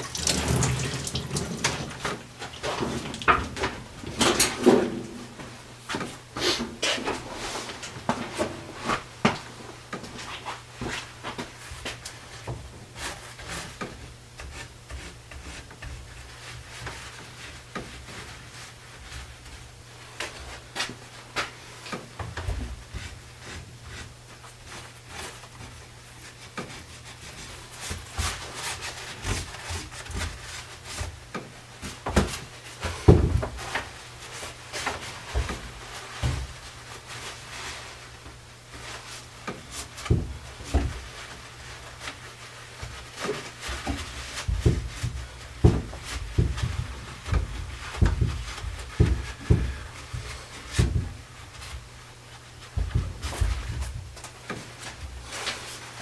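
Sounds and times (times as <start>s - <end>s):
wooden chair knocking and rubbing: 42.8s - 51.9s, 52.6s - 55.2s.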